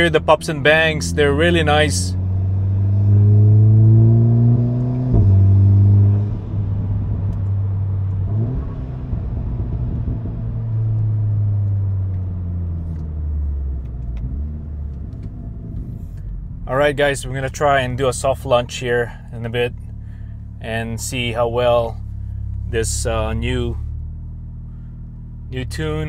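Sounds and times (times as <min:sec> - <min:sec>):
car engine accelerating: 0:00.0 - 0:26.0
exhaust crackles: 0:00.0 - 0:26.0.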